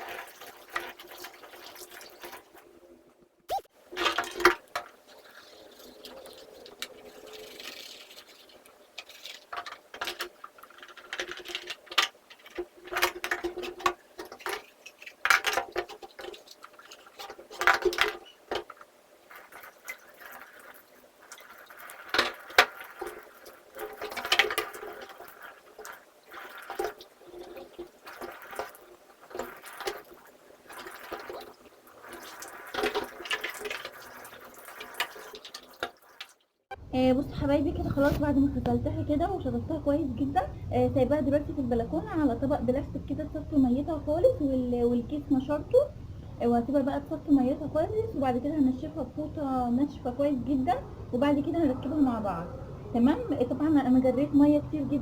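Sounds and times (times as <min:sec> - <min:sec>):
water running and splashing: 0:00.0 - 0:02.7, 0:03.7 - 0:36.6
plastic parts knocking: 0:03.9 - 0:31.6.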